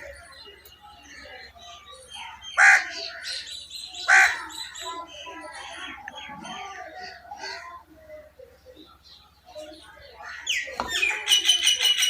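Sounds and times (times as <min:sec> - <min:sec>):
small birds twittering: 0:00.0 - 0:12.0
crow cawing: 0:02.6 - 0:03.3, 0:04.0 - 0:04.5.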